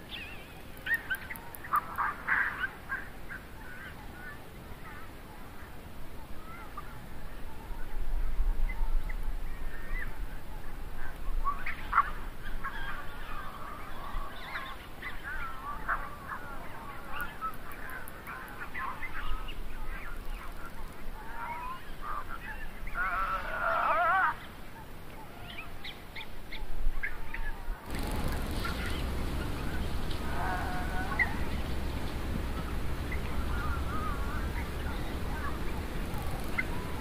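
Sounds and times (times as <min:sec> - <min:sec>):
birds honking: 0:27.9 - 0:37.0.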